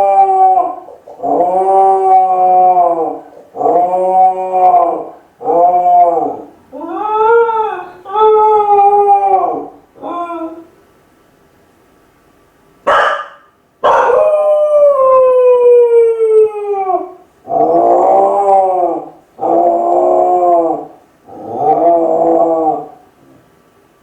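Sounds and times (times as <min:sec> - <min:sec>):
dog howling: 0:00.0 - 0:10.7, 0:12.9 - 0:23.0
dog yelp: 0:12.9 - 0:14.2.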